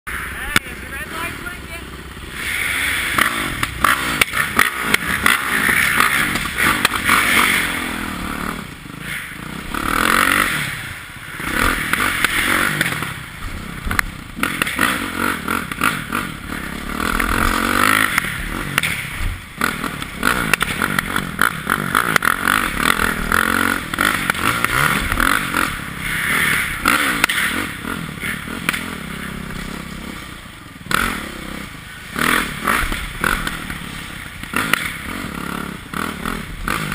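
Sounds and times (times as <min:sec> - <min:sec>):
dirt bike engine revving: 0:00.1 - 0:36.9.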